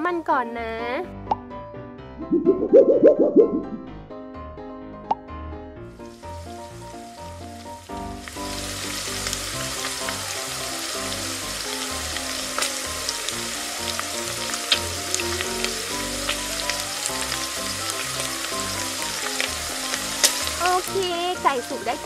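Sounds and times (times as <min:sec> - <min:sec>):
chicken deep-frying in oil: 0:06.0 - 0:22.0
light music tune: 0:13.4 - 0:22.0.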